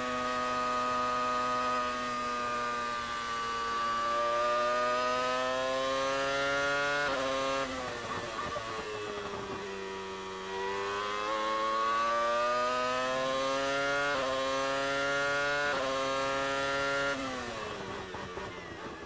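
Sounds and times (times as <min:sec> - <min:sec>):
racing car engine accelerating: 0:10.4 - 0:19.0.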